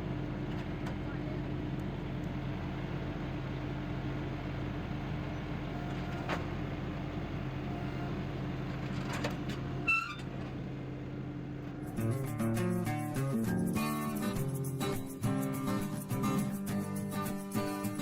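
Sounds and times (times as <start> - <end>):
gas engine running steadily: 0.0 - 9.8
short high squeak: 9.8 - 10.3.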